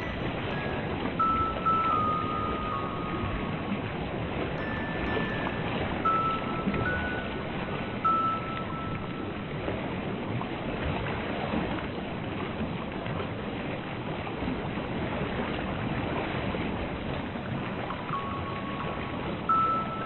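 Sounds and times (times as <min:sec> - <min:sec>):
ocean waves rushing: 0:00.0 - 0:20.0.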